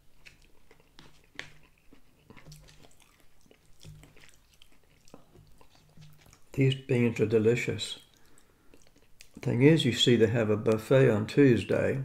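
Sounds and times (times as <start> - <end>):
wet mouth sounds: 0.0 - 6.6, 8.0 - 9.4
man chewing: 0.0 - 6.7, 8.0 - 9.4.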